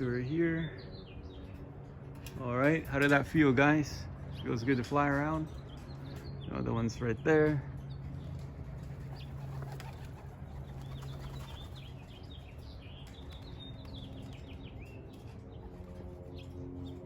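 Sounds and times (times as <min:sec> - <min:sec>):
pigeon wings flapping: 0:08.8 - 0:12.1.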